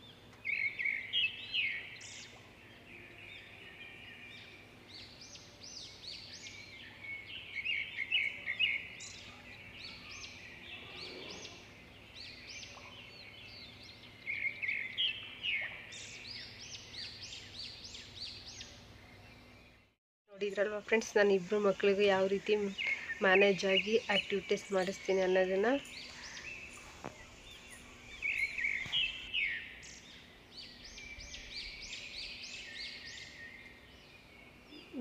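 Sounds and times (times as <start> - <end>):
faint hum: 0.0 - 35.0
small birds chirping: 0.0 - 35.0.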